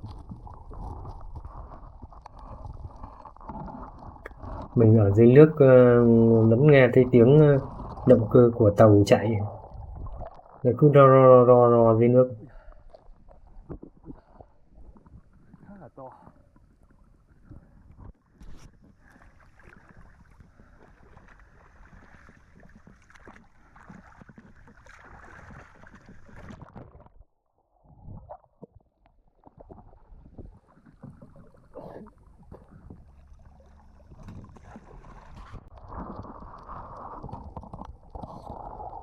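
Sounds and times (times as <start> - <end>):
boat engine droning underwater: 30.8 - 39.0.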